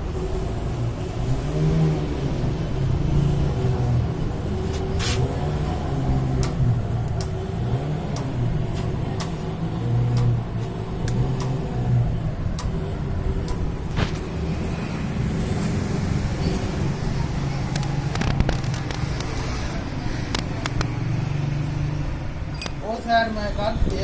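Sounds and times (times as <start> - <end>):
sharp clicks: 6.4 - 7.4, 11.0 - 11.8.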